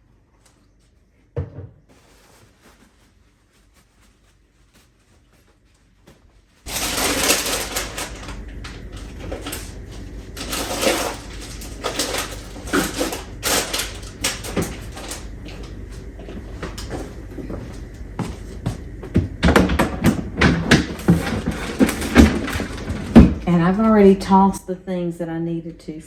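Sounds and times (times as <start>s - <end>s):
items clattering in a refrigerator: 0.0s - 24.6s
refrigerator hum: 0.0s - 26.0s.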